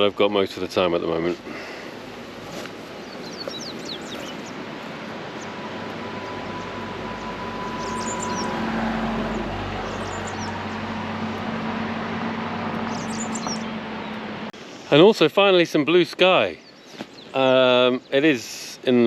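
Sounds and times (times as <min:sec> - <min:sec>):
birds chirping: 0:00.0 - 0:19.0
low engine hum: 0:01.7 - 0:14.6.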